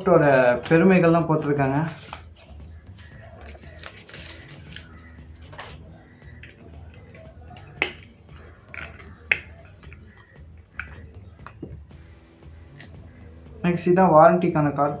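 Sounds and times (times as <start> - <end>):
paper and cardboard rustling: 0.0 - 11.8.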